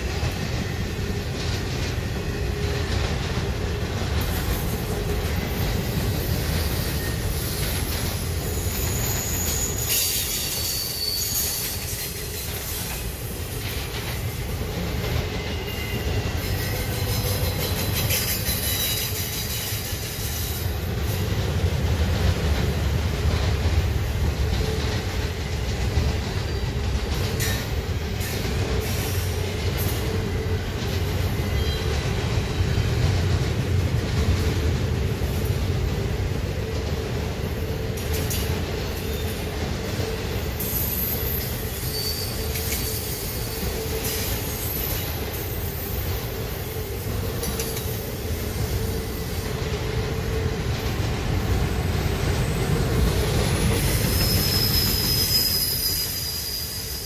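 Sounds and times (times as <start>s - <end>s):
train clanks: 0.0s - 57.0s
train wheels rumbling on rail: 0.0s - 57.0s
high-pitched wheel squeal: 8.4s - 12.6s, 40.6s - 45.1s, 53.5s - 57.0s.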